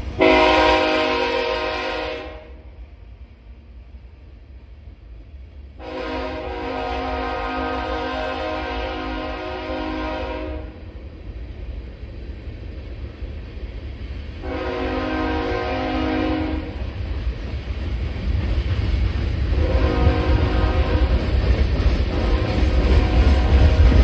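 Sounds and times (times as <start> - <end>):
train low rumble: 0.0 - 24.0
locomotive horn blasts: 0.2 - 2.6, 5.8 - 10.8, 14.4 - 16.7, 19.6 - 21.1, 22.4 - 23.9.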